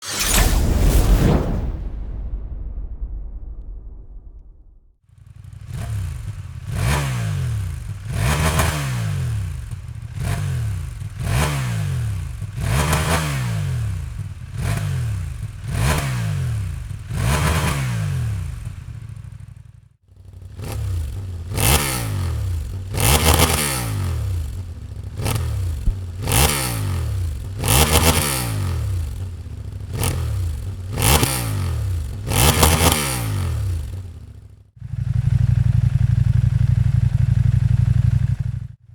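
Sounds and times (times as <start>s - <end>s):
motorcycle engine revving: 5.2s - 38.9s.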